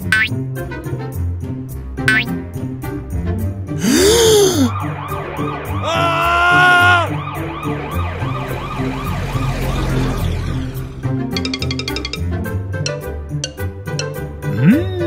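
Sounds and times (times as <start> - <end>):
background music: 0.0 - 4.8, 5.7 - 9.1
person shouting: 3.8 - 4.7, 5.8 - 7.2
siren wailing: 4.8 - 9.6.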